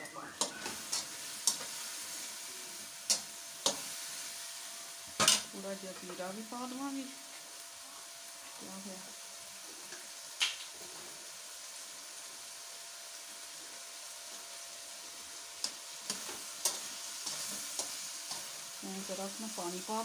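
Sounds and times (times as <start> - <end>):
chicken sizzling in a pan: 0.0 - 20.0.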